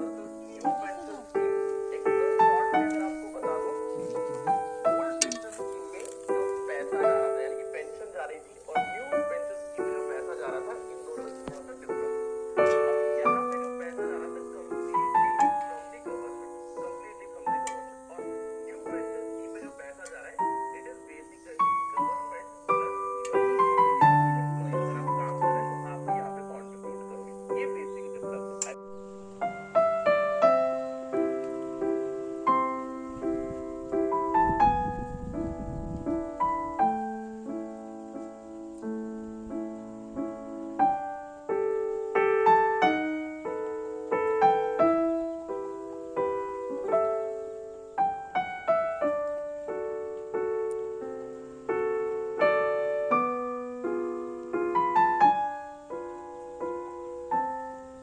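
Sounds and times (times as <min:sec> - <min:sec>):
gentle piano music: 0:00.0 - 0:58.0.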